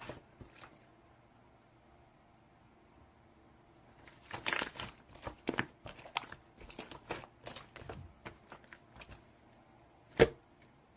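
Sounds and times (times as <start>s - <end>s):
crinkling and clicking handling: 4.0s - 9.6s.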